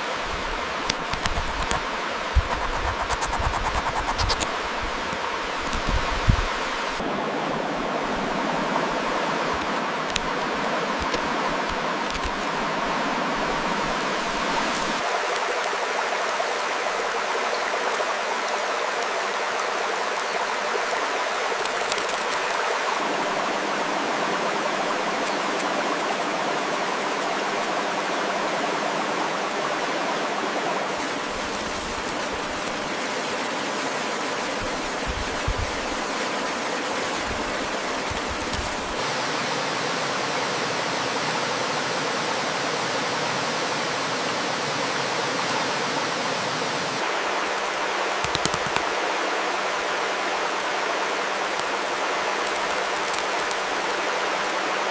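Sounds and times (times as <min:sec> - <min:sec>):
stream water rushing: 0:00.0 - 0:54.9.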